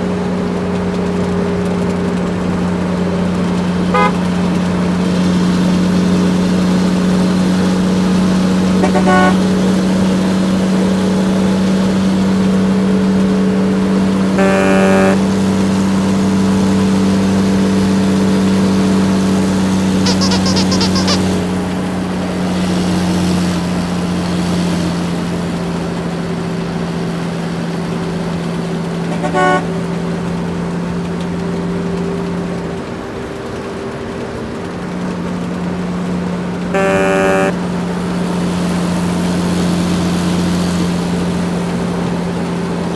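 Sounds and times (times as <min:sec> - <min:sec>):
truck engine running: 0:00.7 - 0:11.7, 0:13.7 - 0:19.3, 0:36.2 - 0:38.4
horn honks: 0:04.0 - 0:04.3, 0:08.8 - 0:09.8, 0:14.4 - 0:15.4, 0:20.1 - 0:21.4, 0:29.1 - 0:29.8, 0:36.7 - 0:37.6.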